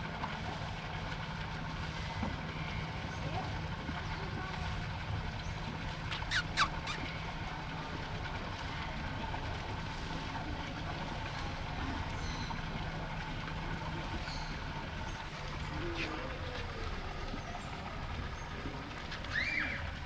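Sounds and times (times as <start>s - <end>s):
vehicle engine droning: 0.0s - 6.1s, 7.0s - 20.0s
sharp squeals falling in pitch: 6.2s - 7.0s.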